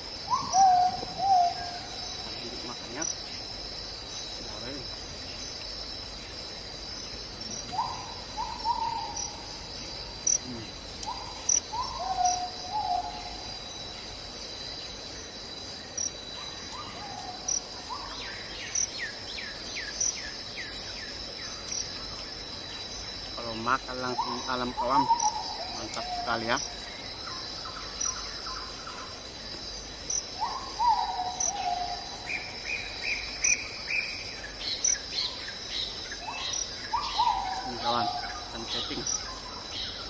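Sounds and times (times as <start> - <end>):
bird calling: 0.0 - 3.2, 7.4 - 13.6, 23.4 - 29.2, 30.2 - 40.0
crickets chirping: 0.0 - 40.0.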